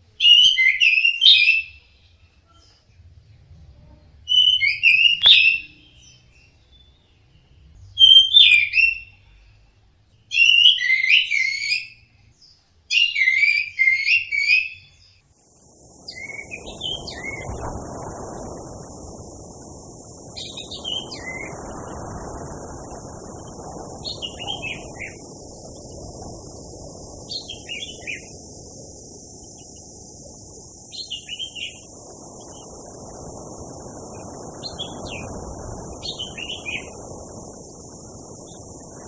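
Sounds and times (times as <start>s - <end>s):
steady high hiss: 0.0s - 39.0s
thrush singing whistled notes: 0.2s - 1.9s, 4.3s - 9.2s, 10.3s - 12.0s, 12.9s - 39.0s
low rushing noise: 15.2s - 39.0s.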